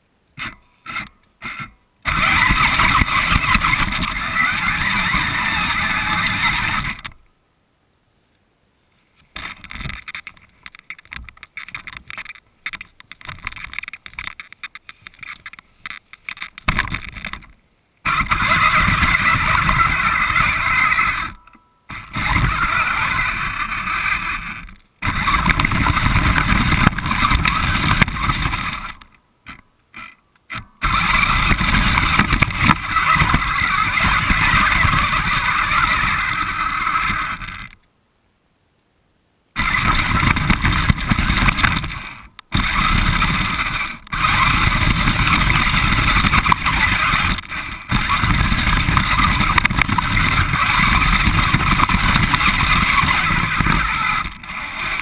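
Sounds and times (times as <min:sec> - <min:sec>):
rc car motor and tyre noise: 0:00.4 - 0:07.3, 0:09.3 - 0:37.8, 0:39.6 - 0:55.0
irregular rattling: 0:09.3 - 0:37.8.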